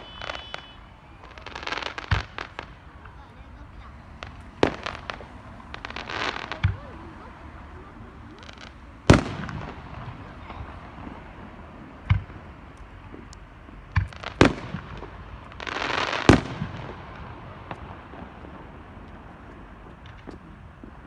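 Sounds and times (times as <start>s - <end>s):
hissing crackle: 0.0s - 10.8s
fireworks bursting: 0.0s - 21.0s.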